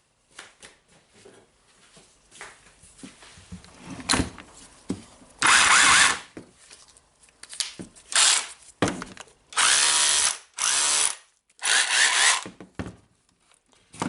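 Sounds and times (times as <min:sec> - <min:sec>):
rotary hammer motor: 0:05.4 - 0:06.2, 0:09.6 - 0:12.5.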